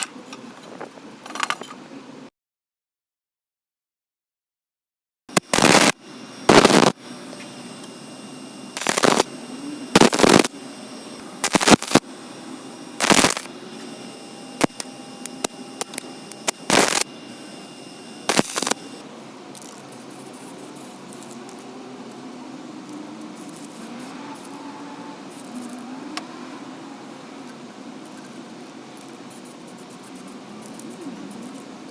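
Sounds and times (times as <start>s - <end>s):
belt grinder running: 5.6s - 19.0s.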